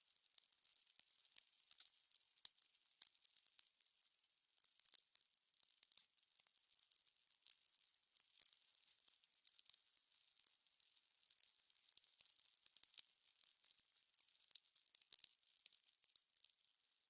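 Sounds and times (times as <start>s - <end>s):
fire crackling: 0.2s - 3.9s, 8.4s - 10.0s.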